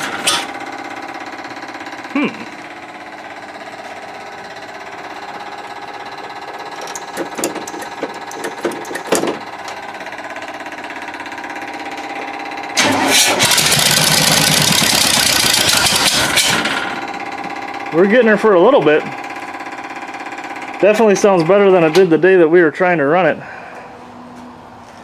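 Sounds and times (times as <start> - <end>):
vee-eight engine running: 0.0 - 25.0.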